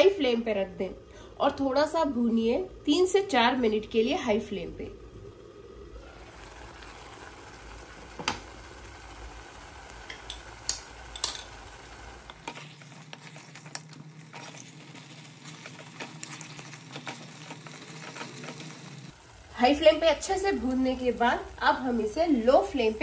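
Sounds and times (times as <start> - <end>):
chicken sizzling in a metal pot: 6.0 - 23.0
spatula scraping a pot: 12.3 - 19.0.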